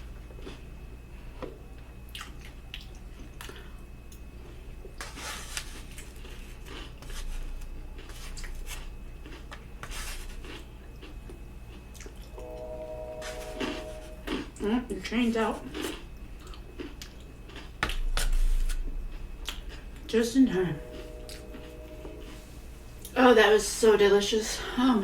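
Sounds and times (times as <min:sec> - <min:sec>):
person chewing wetly: 0:01.4 - 0:05.0, 0:05.6 - 0:12.4, 0:15.7 - 0:19.9
steady pitched tone: 0:12.4 - 0:14.4, 0:20.4 - 0:23.7.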